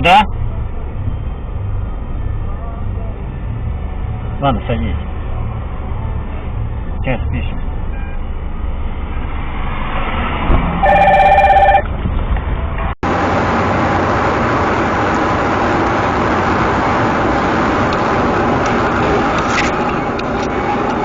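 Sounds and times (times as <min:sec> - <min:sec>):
vehicle road noise: 0:00.0 - 0:21.0
electronic beep: 0:10.8 - 0:11.8.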